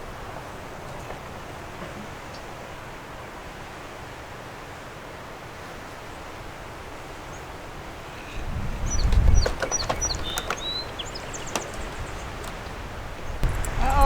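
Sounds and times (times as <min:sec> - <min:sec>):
low rumble of wind on microphone: 0:07.6 - 0:14.0
steady background hiss: 0:10.8 - 0:14.0.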